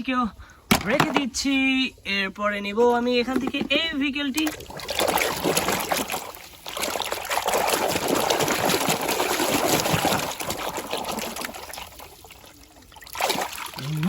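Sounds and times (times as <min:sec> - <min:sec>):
water running and trickling: 0:04.4 - 0:14.0.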